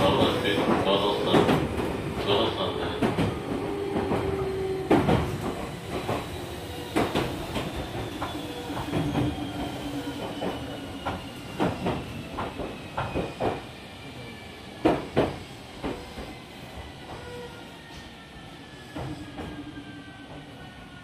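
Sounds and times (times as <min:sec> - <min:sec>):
train interior rumble: 0:00.0 - 0:17.3.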